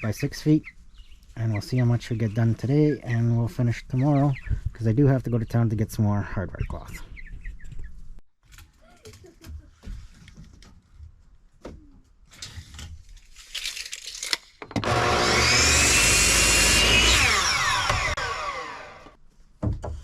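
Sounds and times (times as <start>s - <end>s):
electric power saw cutting wood: 14.8s - 19.2s.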